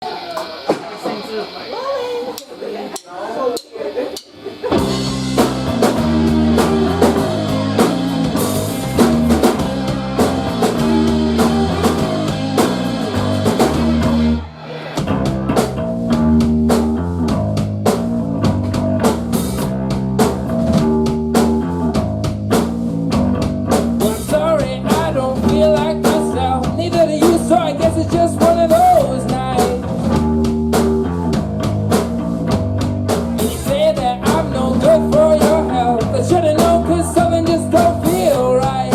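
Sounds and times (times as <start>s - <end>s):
rock band playing: 0.0s - 2.8s, 3.9s - 38.9s
wavering lead melody: 4.8s - 14.6s.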